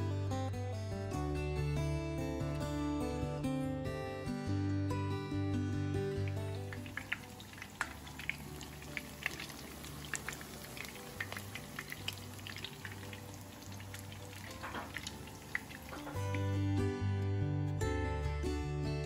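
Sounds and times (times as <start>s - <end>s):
quiet background music: 0.0s - 19.0s
patties sizzling in oil: 6.1s - 16.7s.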